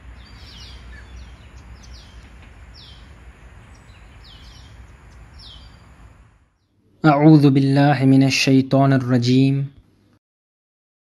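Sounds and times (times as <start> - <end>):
small birds chirping: 0.0 - 6.8
low outdoor background rumble: 0.0 - 9.5.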